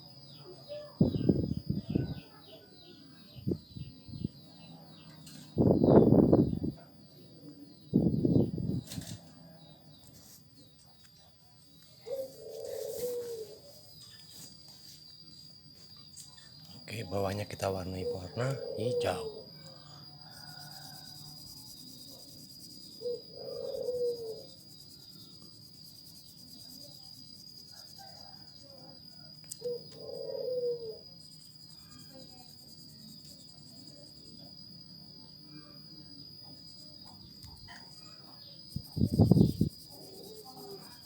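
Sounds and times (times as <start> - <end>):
cricket trilling: 0.0 - 41.0.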